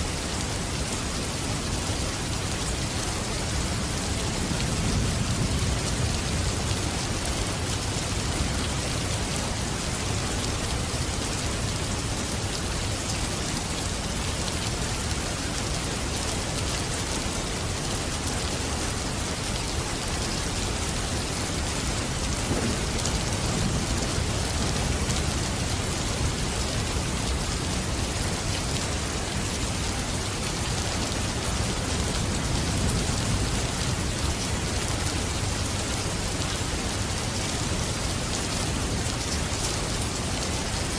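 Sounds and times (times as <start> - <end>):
heavy rain falling: 0.0 - 40.9
distant thunder rumbling: 22.2 - 24.6.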